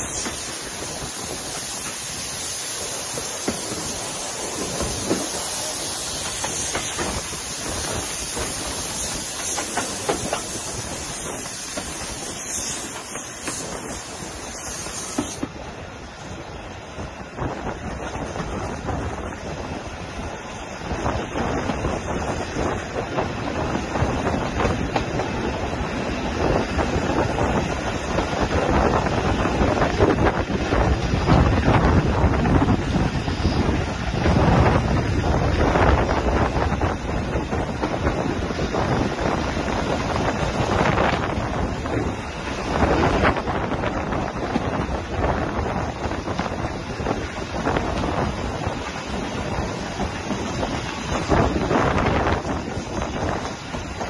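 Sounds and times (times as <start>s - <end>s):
wheels clicking on rails: 0.0s - 15.6s
train running noise: 0.0s - 54.0s
wind buffeting microphone: 0.0s - 54.0s.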